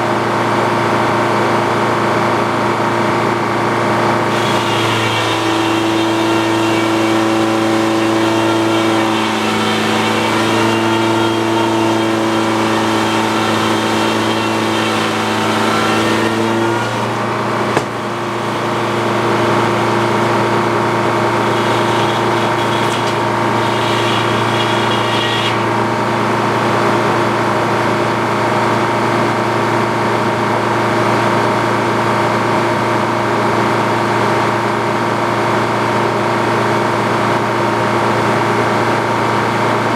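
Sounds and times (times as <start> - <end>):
circular sawmill running: 3.4 - 28.0
sharp knock: 17.8 - 18.0.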